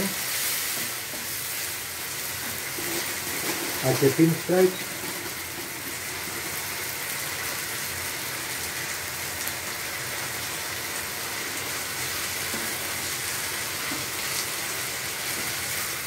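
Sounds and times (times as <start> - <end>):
stir fry sizzling in a pan: 0.0 - 16.0
wooden spatula stirring: 2.4 - 4.1, 4.7 - 6.6.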